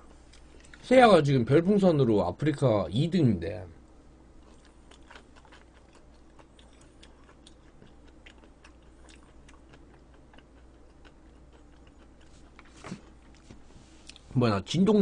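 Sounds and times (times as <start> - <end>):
low steady hum: 0.0 - 15.0
person chewing food: 0.1 - 0.8, 4.4 - 14.3.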